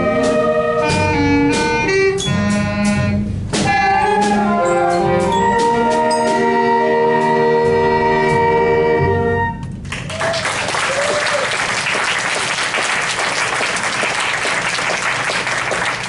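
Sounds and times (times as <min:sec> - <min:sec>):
brass ensemble chord: 0:00.0 - 0:09.8
audience applause: 0:09.9 - 0:16.0.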